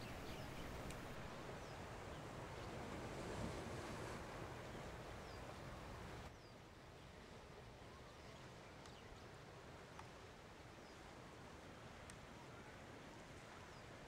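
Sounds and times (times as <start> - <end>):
small birds chirping: 0.0 - 2.2
wind and surf hiss: 0.0 - 14.0.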